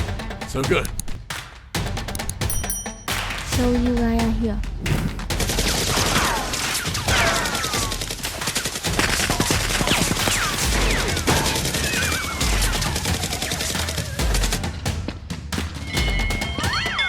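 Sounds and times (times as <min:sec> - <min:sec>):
rapid gunfire: 0:04.9 - 0:14.8.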